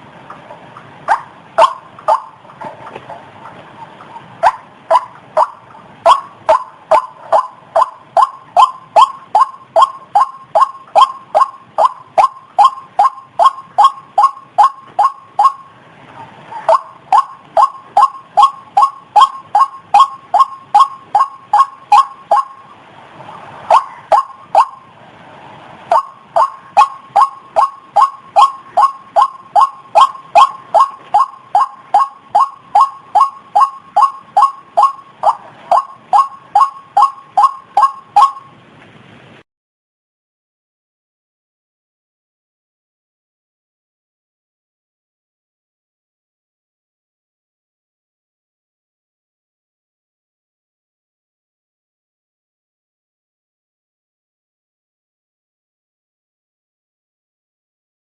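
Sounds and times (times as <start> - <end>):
waterhen calling loud notes: 0.0 - 38.7.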